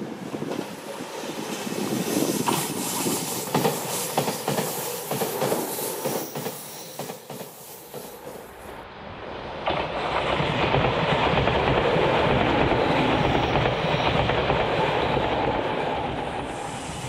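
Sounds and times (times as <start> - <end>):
electric train passing at speed: 0.0 - 17.0
train wheels clacking over rail joints: 2.1 - 8.3.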